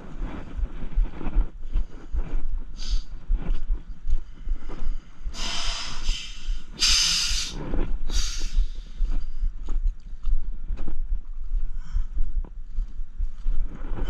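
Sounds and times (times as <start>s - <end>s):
low rumbling: 0.0s - 14.0s
man breathing hard: 2.8s - 3.2s, 4.3s - 9.5s, 11.7s - 12.4s.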